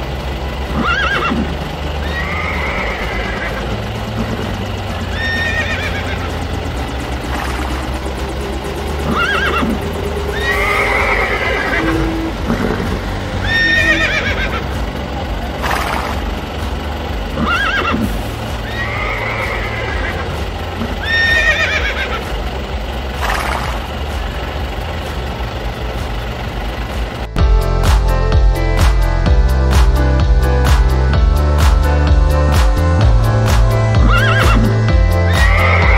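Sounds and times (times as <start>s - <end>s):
background music with low bass: 0.0s - 35.9s
horse neighing: 0.8s - 3.6s, 5.1s - 6.3s, 9.0s - 14.6s, 17.4s - 22.2s, 34.0s - 34.7s, 35.3s - 35.9s.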